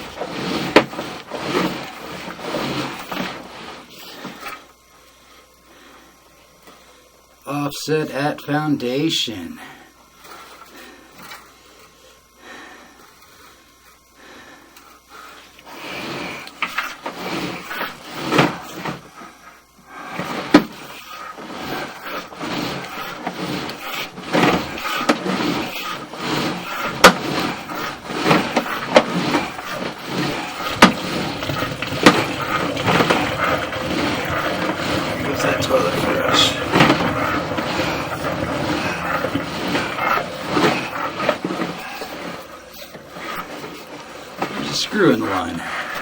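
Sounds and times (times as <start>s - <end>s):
cable scraping and clattering: 0.0s - 4.6s, 15.7s - 19.0s, 20.1s - 46.0s.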